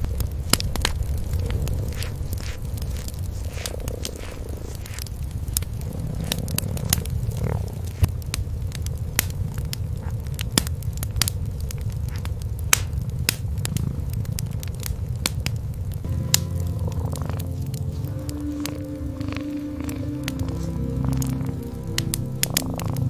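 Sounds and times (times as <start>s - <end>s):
cats purring: 0.0s - 23.0s
wood fire crackling and popping: 0.0s - 23.0s.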